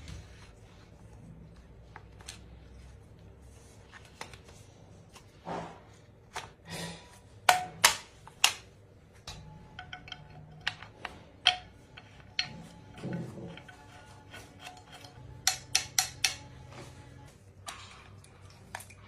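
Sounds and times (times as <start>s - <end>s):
metallic clinks and knocks: 9.3s - 16.5s.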